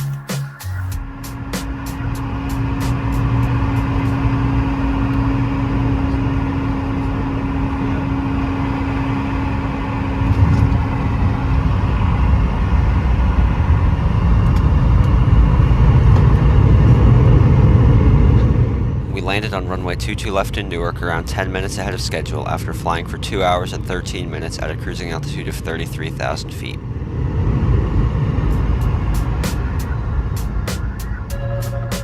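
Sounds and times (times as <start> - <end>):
aircraft touchdown bump: 0.0 - 23.6, 27.4 - 32.0
jet engines humming: 0.0 - 32.0
low rumble of runway rollout: 0.0 - 32.0.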